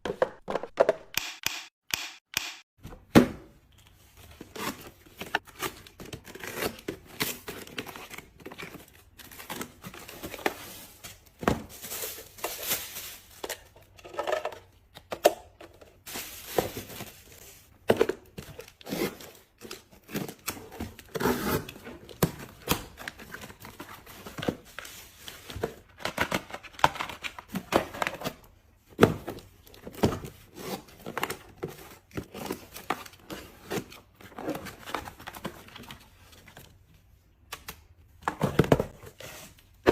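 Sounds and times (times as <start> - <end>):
plastic and paper crinkling: 6.8 - 14.0, 16.0 - 17.7.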